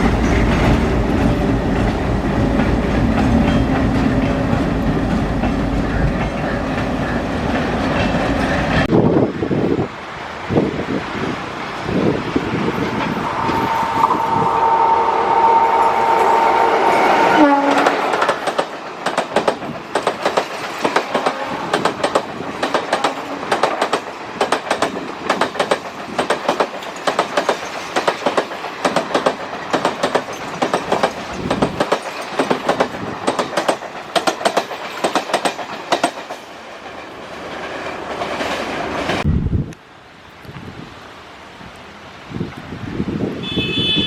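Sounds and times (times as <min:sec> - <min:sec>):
train wheels clattering over rails: 0:00.0 - 0:09.2, 0:16.0 - 0:39.3
train horn: 0:13.2 - 0:18.3, 0:21.1 - 0:21.8, 0:43.4 - 0:44.0.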